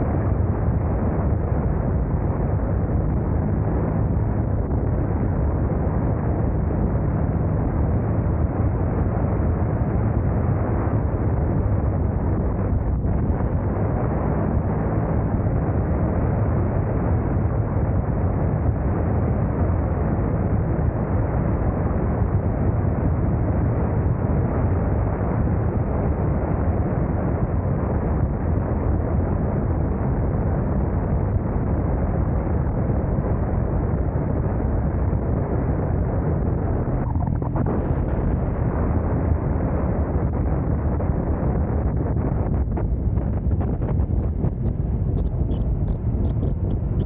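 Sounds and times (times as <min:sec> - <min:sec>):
wind rushing over microphone: 0:00.0 - 0:47.0
motorcycle engine rumble: 0:36.2 - 0:38.7, 0:41.9 - 0:47.0.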